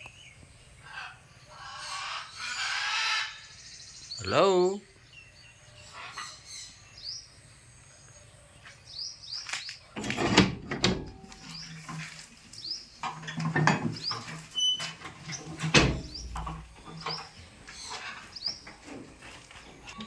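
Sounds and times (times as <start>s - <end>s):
rustling: 9.4s - 20.0s.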